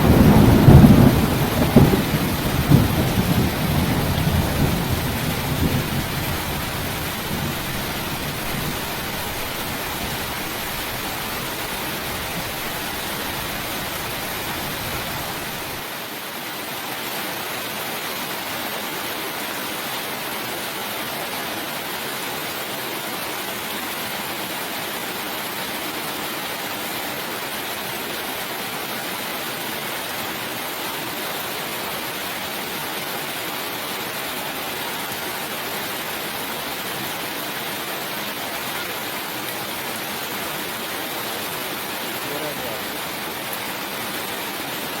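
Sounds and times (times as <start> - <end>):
low thunder rumble: 0.0 - 15.7
heavy rain hissing: 0.0 - 16.8, 21.5 - 45.0.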